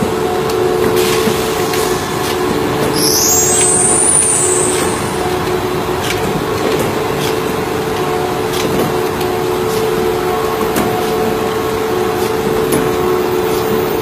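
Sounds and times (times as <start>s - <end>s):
machinery humming: 0.0s - 14.0s
high squeal: 2.9s - 5.9s.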